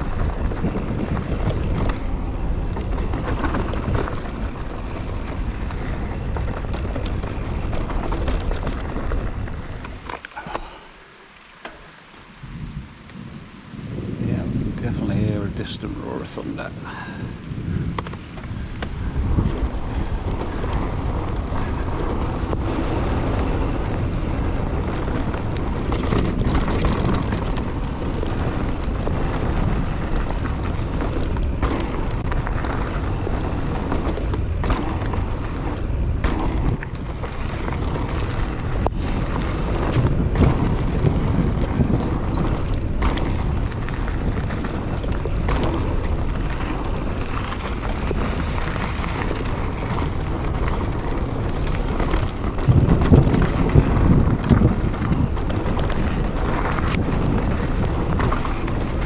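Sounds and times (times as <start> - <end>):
wind buffeting microphone: 0.0 - 10.1, 12.3 - 59.0
bike knocks and rattles: 0.0 - 10.8, 11.4 - 12.0, 17.8 - 59.0
bicycle tyre noise: 0.0 - 59.0.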